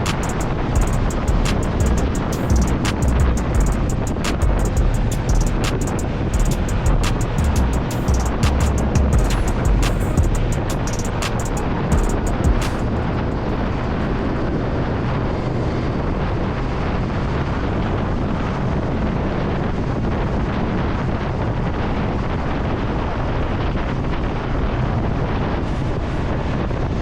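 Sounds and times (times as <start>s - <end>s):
motorcycle engine running: 0.0s - 13.0s
wind buffeting microphone: 0.0s - 27.0s.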